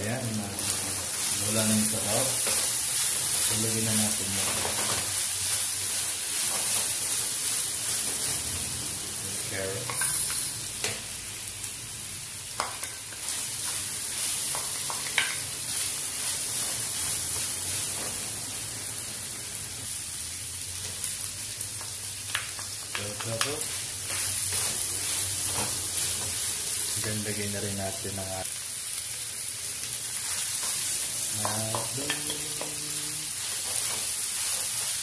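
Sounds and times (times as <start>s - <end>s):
chicken sizzling in a frying pan: 0.0s - 35.0s
spatula stirring: 23.2s - 26.6s.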